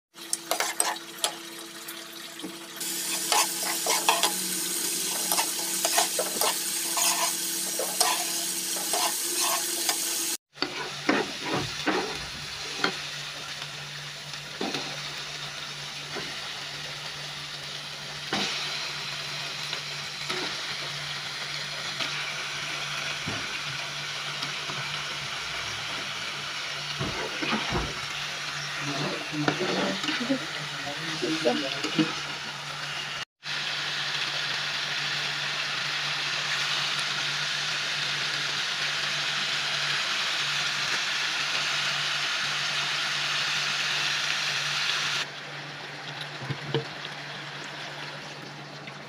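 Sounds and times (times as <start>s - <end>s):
spice paste sizzling in oil: 0.2s - 1.3s, 2.8s - 45.9s
metal spatula scraping a pan: 0.5s - 1.1s, 3.0s - 13.0s, 28.8s - 30.5s.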